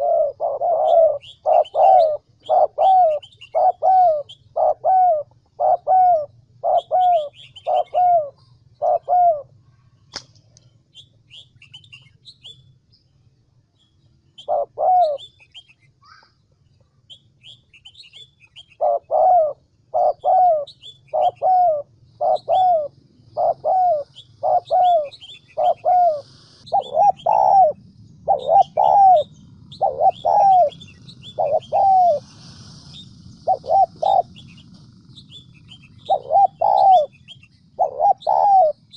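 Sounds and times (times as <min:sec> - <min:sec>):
dove cooing: 0:00.0 - 0:09.5, 0:14.4 - 0:15.3, 0:17.9 - 0:38.9
small birds chirping: 0:00.0 - 0:38.9
sharp click: 0:10.1 - 0:10.7.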